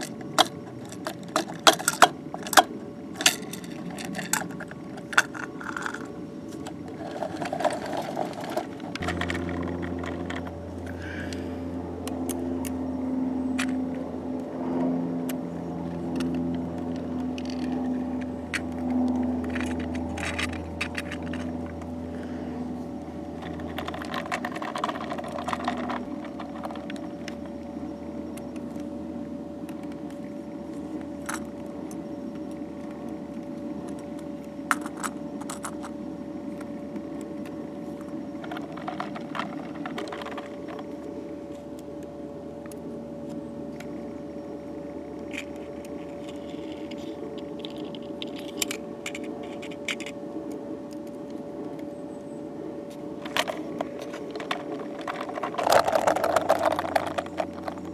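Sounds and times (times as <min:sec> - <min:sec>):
steady hum: 0:00.0 - 0:57.9
light clicks and metallic rattles: 0:15.8 - 0:22.2.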